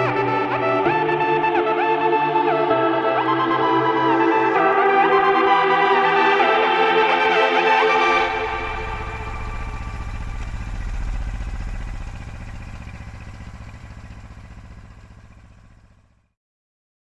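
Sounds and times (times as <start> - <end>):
engine low pulsing rumble: 8.1 - 16.3.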